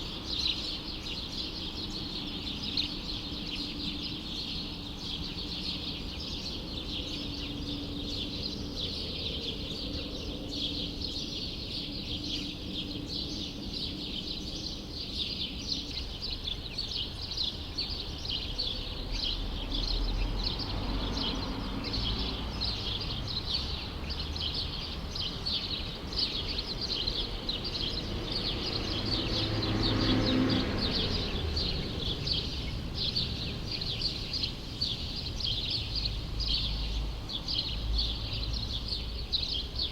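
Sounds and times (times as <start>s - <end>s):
city background noise: 0.0s - 39.9s
small birds chirping: 0.0s - 39.9s
vehicle passing: 28.0s - 34.4s.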